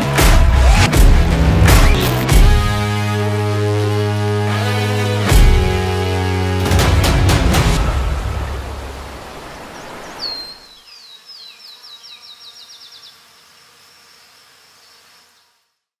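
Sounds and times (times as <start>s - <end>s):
faint outdoor hiss: 8.4s - 16.0s.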